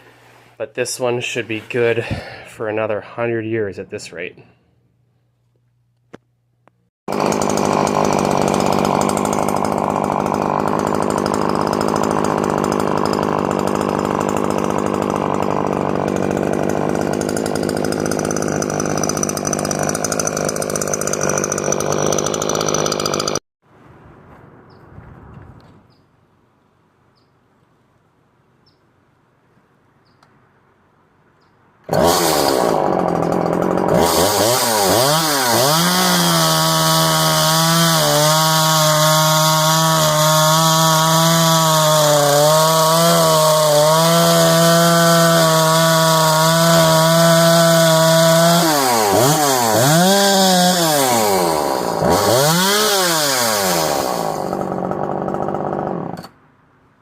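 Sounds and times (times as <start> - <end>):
chainsaw revving: 7.1 - 23.4, 31.9 - 56.3.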